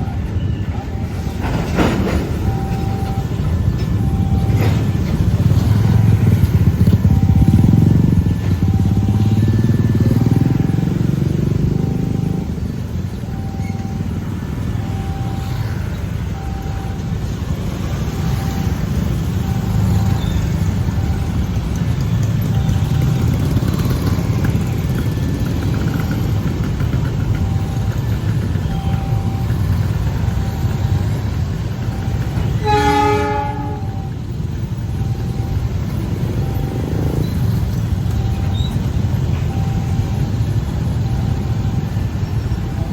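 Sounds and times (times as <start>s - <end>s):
level crossing warning bell: 0.0s - 42.9s
train rumbling: 0.0s - 42.9s
train horn blast: 32.5s - 34.1s.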